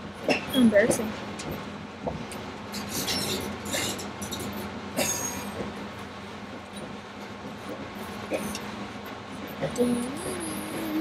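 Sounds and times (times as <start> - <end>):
train rumble and hum: 0.0 - 11.0.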